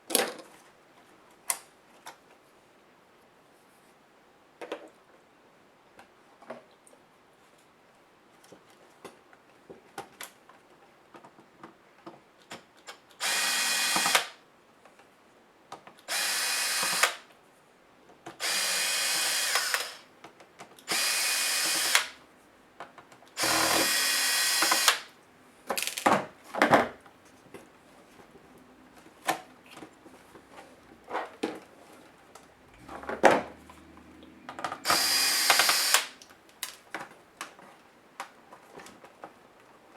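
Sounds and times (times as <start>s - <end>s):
electric screwdriver running: 13.2s - 14.4s, 16.1s - 17.2s, 18.4s - 20.0s, 20.9s - 22.2s, 23.4s - 25.1s, 34.8s - 36.2s.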